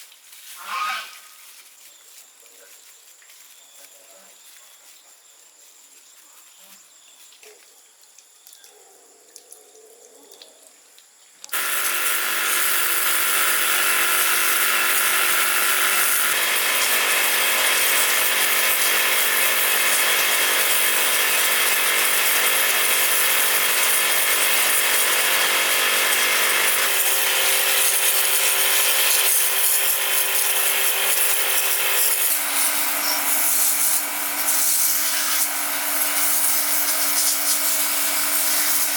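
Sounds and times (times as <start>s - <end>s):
electric power tool whining: 11.5s - 38.9s.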